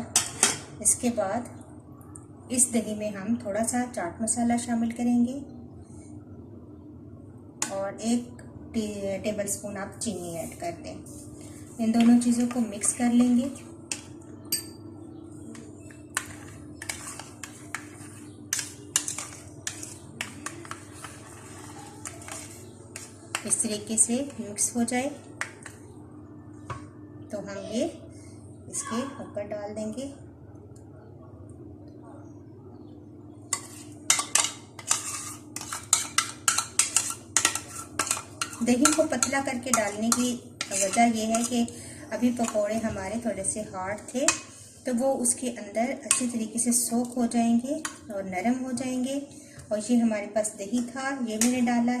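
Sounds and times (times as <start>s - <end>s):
spoon stirring in a bowl: 11.8s - 26.0s, 33.5s - 43.0s, 46.1s - 47.2s, 47.8s - 48.1s.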